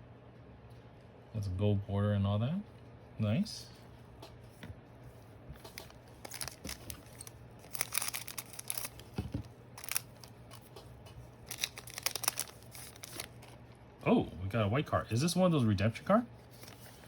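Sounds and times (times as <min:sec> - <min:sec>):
cards being shuffled: 0:05.6 - 0:13.7, 0:16.5 - 0:17.0.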